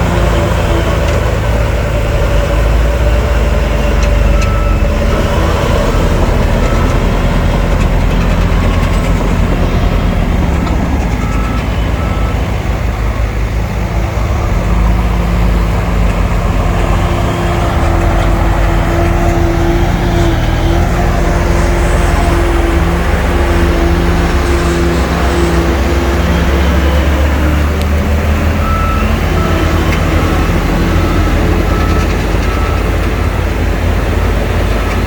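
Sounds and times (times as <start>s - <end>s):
engine whine: 0.0s - 35.0s
heavy diesel machinery running: 0.0s - 35.0s
reverse alarm beeping: 3.6s - 7.7s, 8.6s - 12.9s.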